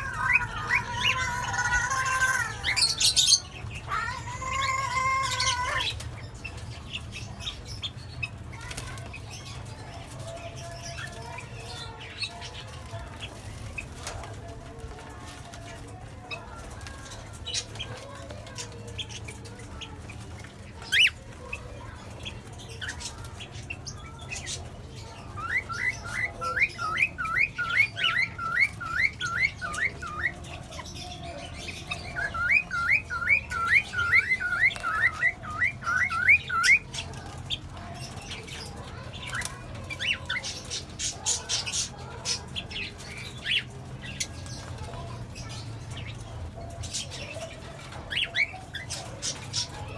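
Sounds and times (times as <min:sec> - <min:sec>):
parrots squawking: 0:00.0 - 0:08.2, 0:19.2 - 0:23.2, 0:24.3 - 0:46.2.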